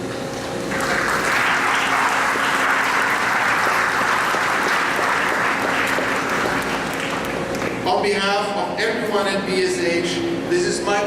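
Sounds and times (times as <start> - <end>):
audience applauding: 0.7 - 7.8.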